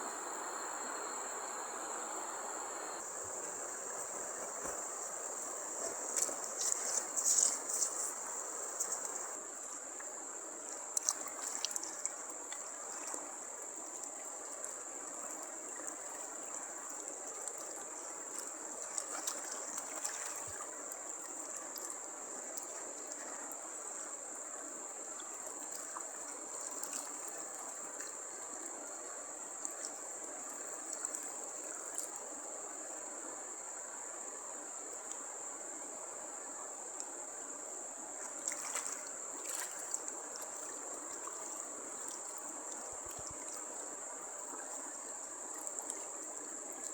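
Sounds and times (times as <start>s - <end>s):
even hiss: 0.0s - 9.4s
insects chirring: 0.0s - 9.4s.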